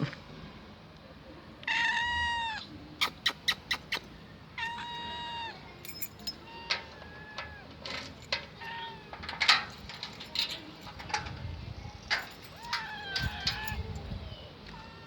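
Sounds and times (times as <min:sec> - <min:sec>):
cat meowing: 0:01.6 - 0:02.7, 0:04.6 - 0:05.7, 0:06.4 - 0:07.7, 0:08.6 - 0:09.2, 0:12.5 - 0:13.9.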